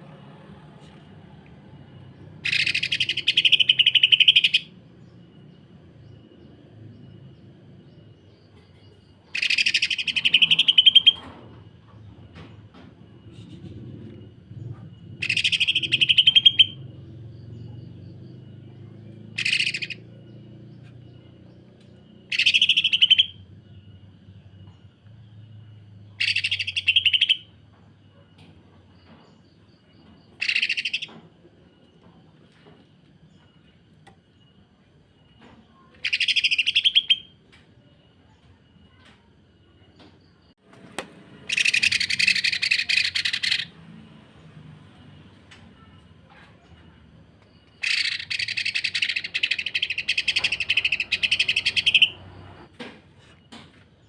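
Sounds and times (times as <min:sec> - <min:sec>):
bird harsh chattering song: 0:02.4 - 0:05.4, 0:08.0 - 0:11.3, 0:13.1 - 0:23.5, 0:26.1 - 0:28.2, 0:30.3 - 0:31.3, 0:35.6 - 0:37.4, 0:41.4 - 0:43.8, 0:45.7 - 0:53.4.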